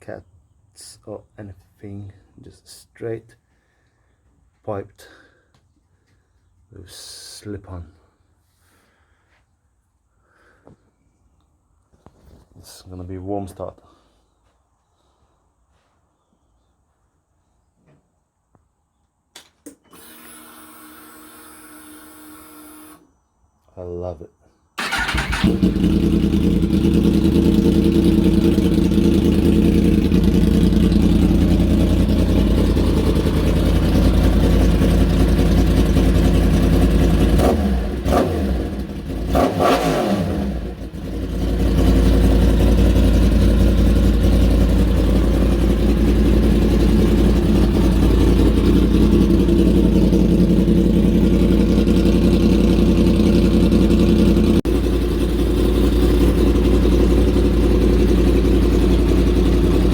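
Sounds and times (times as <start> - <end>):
motorcycle engine idling: 24.8 - 59.9
motorcycle throttle blips: 24.8 - 59.9.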